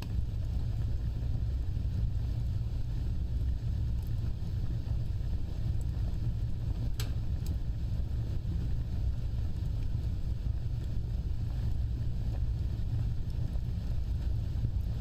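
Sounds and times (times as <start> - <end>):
fire rumbling: 0.0 - 15.0
wood fire crackles: 0.0 - 15.0.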